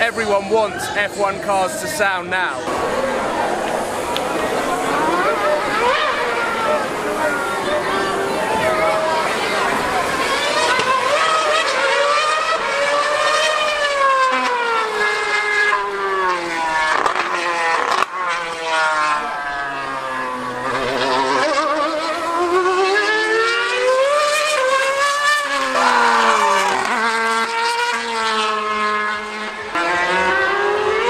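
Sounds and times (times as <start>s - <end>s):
racing car engine screaming: 0.0s - 31.0s.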